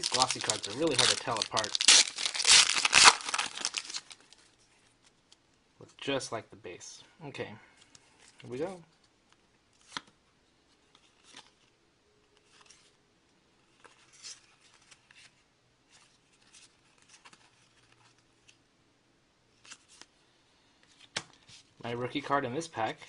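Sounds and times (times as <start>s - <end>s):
trading cards rustling and snapping: 0.0s - 4.4s.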